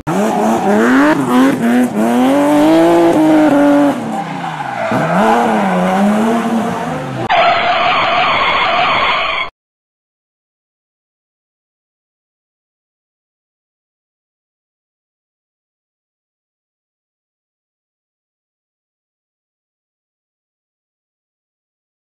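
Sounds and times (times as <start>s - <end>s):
car engine revving: 0.0s - 7.3s.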